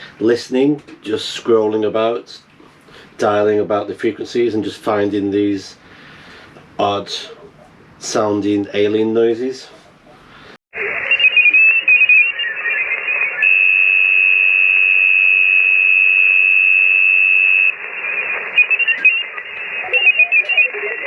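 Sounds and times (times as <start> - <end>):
radio band hiss: 0.0 - 8.2, 9.6 - 16.1, 16.8 - 21.0
radio blips: 10.8 - 21.0
warbling chirping radio signals: 10.8 - 21.0
steady high whistle: 11.0 - 19.4.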